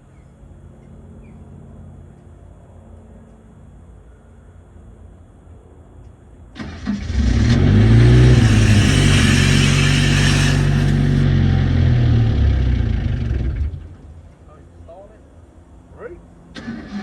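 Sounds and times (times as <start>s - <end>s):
diesel truck engine: 6.6s - 14.3s
rushing hiss: 7.8s - 11.2s.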